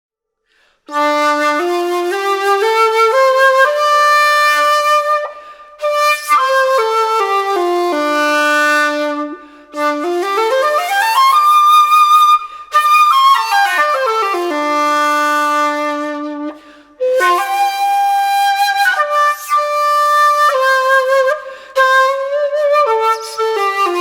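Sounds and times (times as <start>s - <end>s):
bamboo flute playing a scale: 0.9s - 24.0s.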